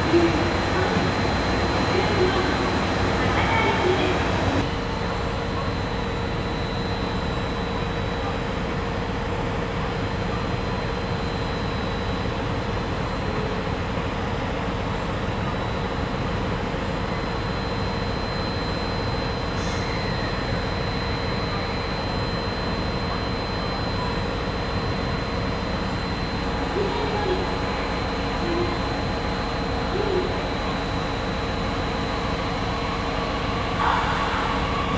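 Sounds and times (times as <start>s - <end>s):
train rumbling: 0.0s - 5.0s, 26.4s - 34.9s.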